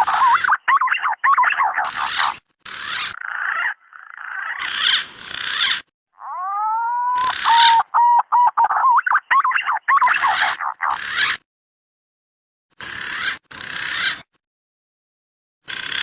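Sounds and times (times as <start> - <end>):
pigeon rasping calls: 0.0 - 11.4, 12.8 - 14.3, 15.7 - 16.0
pigeon whistled notes: 6.4 - 10.6.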